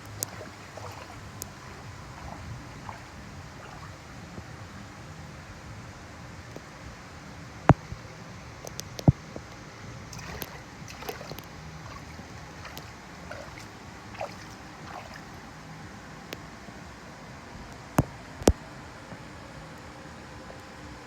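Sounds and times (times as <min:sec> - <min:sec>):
small splashes: 0:00.0 - 0:04.2, 0:10.1 - 0:15.5
river water gurgling: 0:00.0 - 0:21.0.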